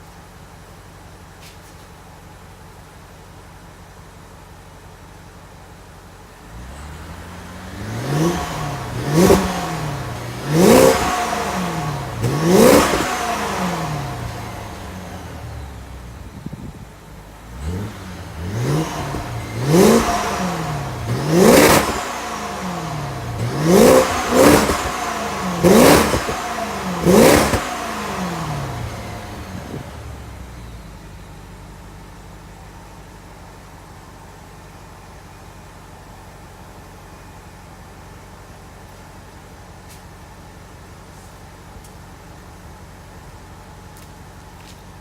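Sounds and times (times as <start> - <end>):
car engine idling: 0.0 - 45.0
car engine revving: 6.4 - 31.3.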